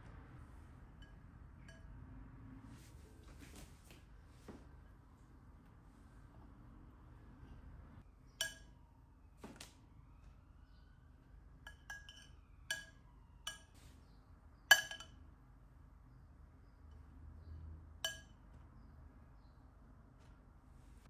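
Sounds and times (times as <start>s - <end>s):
glassware clinking: 11.7s - 13.8s, 14.7s - 15.2s.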